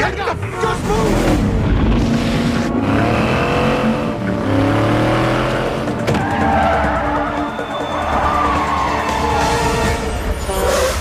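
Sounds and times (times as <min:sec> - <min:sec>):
tyres skidding: 0:00.4 - 0:11.0
car engine revving hard: 0:01.1 - 0:06.1.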